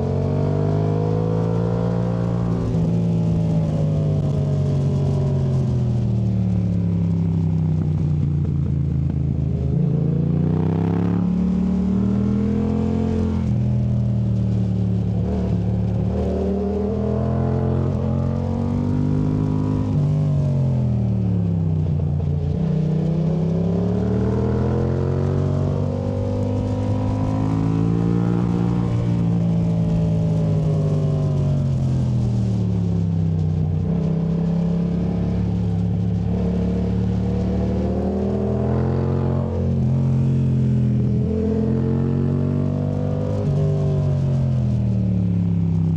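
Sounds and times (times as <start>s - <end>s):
motorcycle engine revving: 7.7s - 14.0s, 22.4s - 45.7s.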